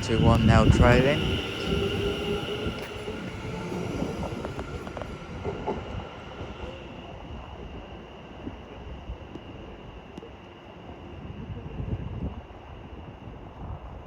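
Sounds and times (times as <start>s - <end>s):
train wheels clicking: 0.0s - 7.2s
electric train running: 0.0s - 13.9s.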